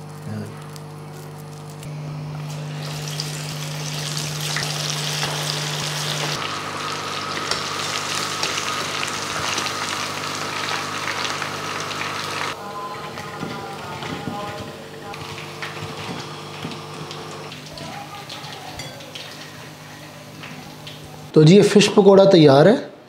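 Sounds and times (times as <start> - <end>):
fish sizzling in hot oil: 2.7 - 12.6.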